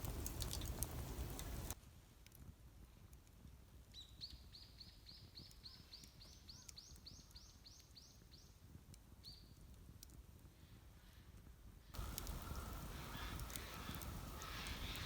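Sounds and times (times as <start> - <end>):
songbird singing: 3.9 - 8.6, 12.0 - 15.0
low outdoor rumble: 12.0 - 15.0.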